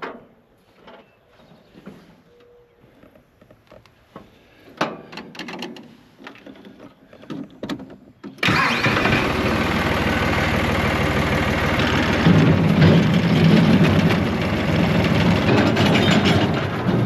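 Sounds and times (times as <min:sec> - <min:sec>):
tractor engine running: 0:08.4 - 0:17.0.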